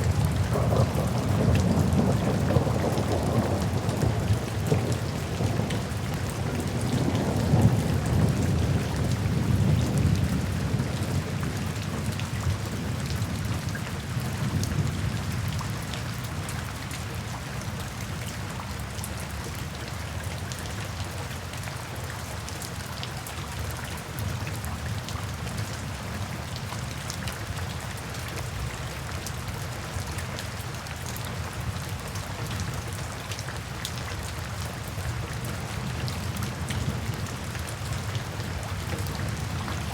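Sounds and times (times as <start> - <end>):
steady rain falling: 0.0 - 39.9
distant thunder rumbling: 0.1 - 11.0.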